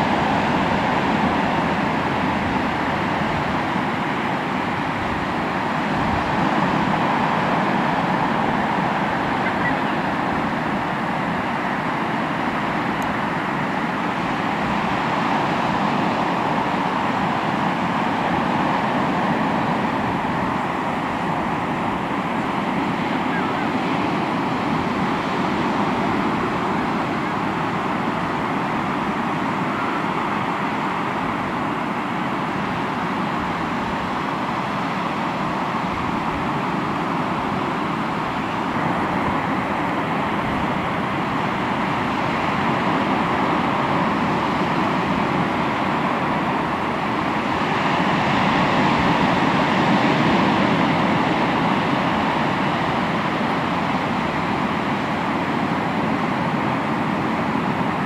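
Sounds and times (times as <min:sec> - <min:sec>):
sea waves breaking on shore: 0:00.0 - 0:58.0.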